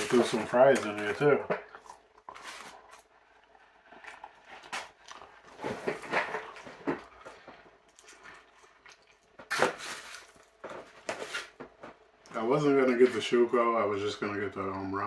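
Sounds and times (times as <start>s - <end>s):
food container rustling and clicking: 0.0s - 2.8s, 4.6s - 7.4s.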